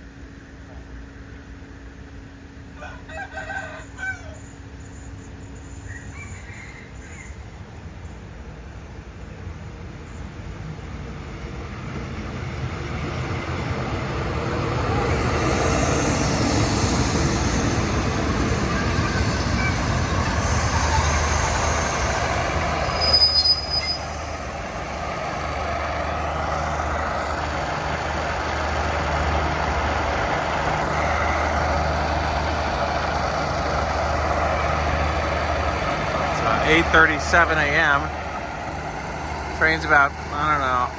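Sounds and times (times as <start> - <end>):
locomotive engine drone: 0.0 - 40.9
train rumbling into station: 0.0 - 40.9
high squeal: 15.4 - 24.5.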